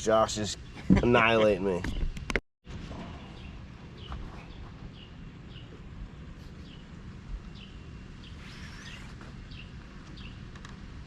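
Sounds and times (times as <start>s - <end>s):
bird chirping: 3.1s - 10.5s.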